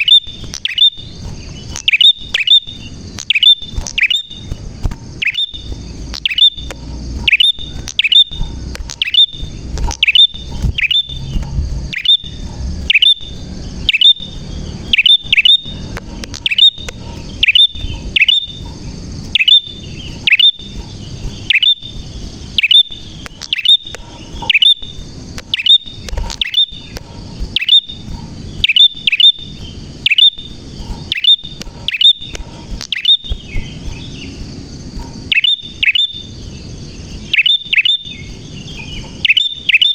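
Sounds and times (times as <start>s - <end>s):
bird chirping sharply: 0.0s - 39.9s.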